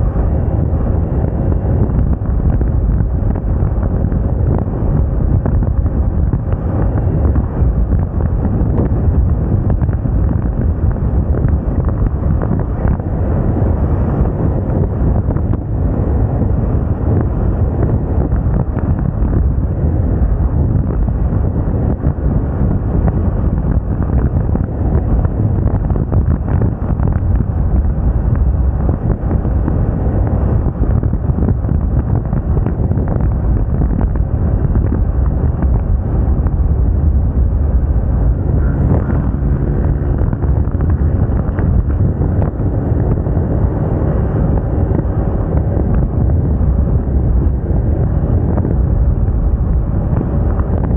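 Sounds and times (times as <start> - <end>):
road noise: 0.0 - 50.9
wind buffeting microphone: 0.0 - 50.9
scooter engine running: 36.5 - 50.5.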